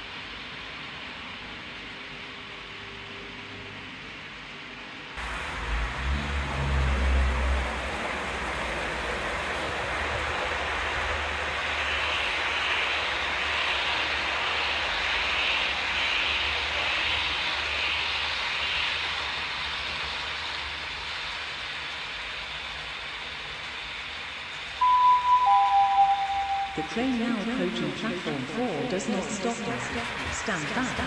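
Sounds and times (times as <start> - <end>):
train wheels rushing on rail: 0.0 - 31.0
deep locomotive rumble: 5.2 - 24.7, 26.2 - 31.0.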